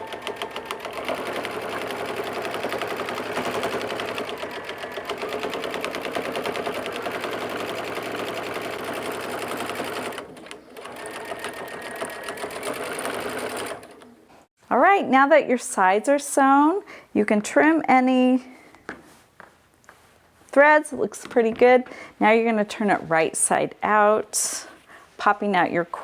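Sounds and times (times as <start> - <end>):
sewing machine stitching: 0.0 - 14.1.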